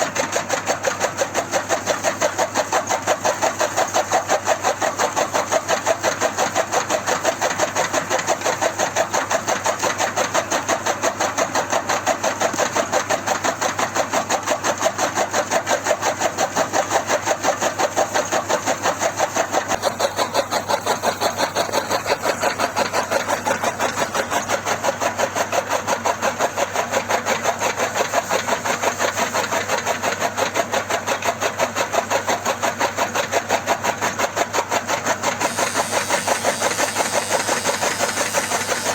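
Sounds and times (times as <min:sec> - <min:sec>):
machine engine pulsing: 0:35.2 - 0:38.9.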